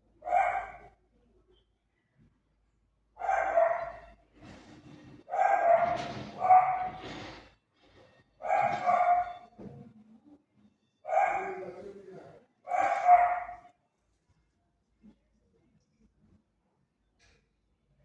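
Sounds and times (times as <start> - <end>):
dog barking: 0.2 - 1.0, 3.2 - 4.1, 5.3 - 7.1, 8.4 - 9.5, 11.1 - 11.9, 12.7 - 13.7.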